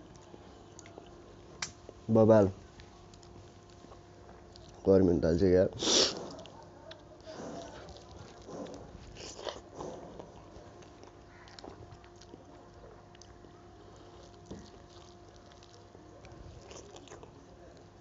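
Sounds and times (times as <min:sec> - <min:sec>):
faint steady hum: 0:00.0 - 0:18.0
person chewing and smacking: 0:03.0 - 0:04.9, 0:06.0 - 0:18.0.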